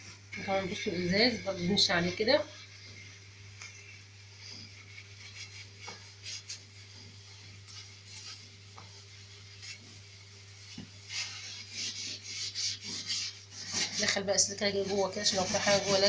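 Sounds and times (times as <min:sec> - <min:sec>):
sponge rubbing stove surface: 0:00.1 - 0:16.0
rasping scrubbing: 0:04.4 - 0:16.0.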